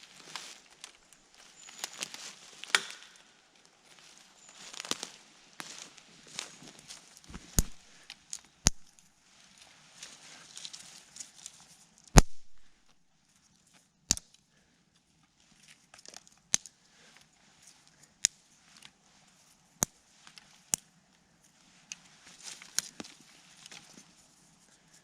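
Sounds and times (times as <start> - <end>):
faint crackle: 0.0 - 14.3
dry wood cracking: 0.2 - 3.3, 4.6 - 9.1.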